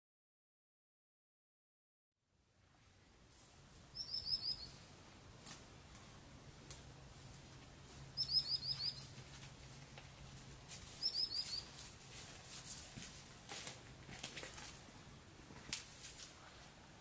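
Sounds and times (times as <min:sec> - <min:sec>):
small bird chirping: 0:03.9 - 0:04.9, 0:08.1 - 0:09.2, 0:10.9 - 0:11.8
soft scuffing noises: 0:05.4 - 0:14.9, 0:15.5 - 0:16.8.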